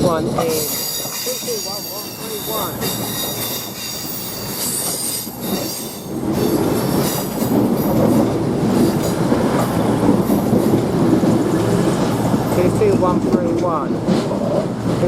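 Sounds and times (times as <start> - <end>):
train carriages rumbling: 0.0 - 15.0
wheels and brakes squealing: 0.6 - 7.3.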